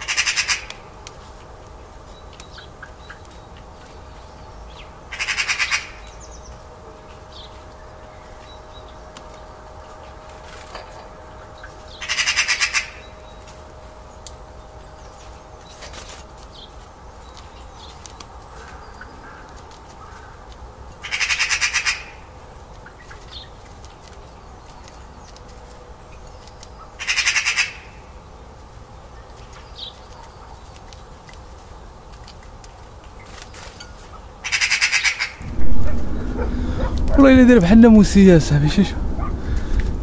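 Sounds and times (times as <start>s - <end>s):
bird harsh rasping call: 5.1s - 6.0s, 11.9s - 13.2s.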